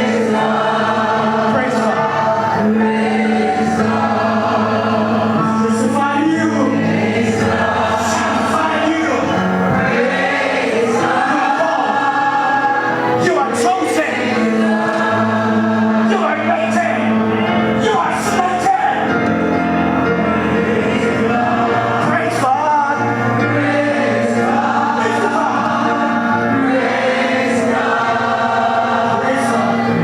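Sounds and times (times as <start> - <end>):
congregation singing: 0.0 - 30.0
instrumental accompaniment: 0.0 - 30.0.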